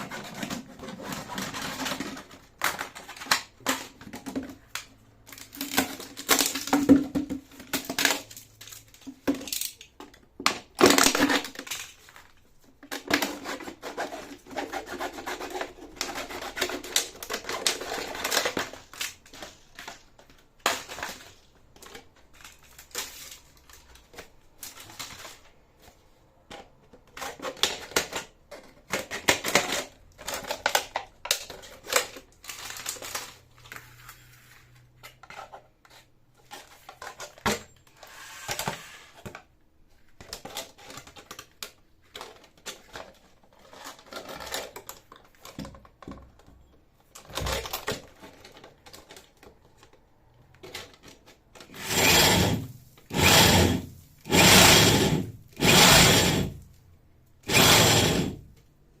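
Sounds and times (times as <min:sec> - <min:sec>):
power drill drilling into concrete: 0:51.7 - 0:56.6, 0:57.4 - 0:58.4.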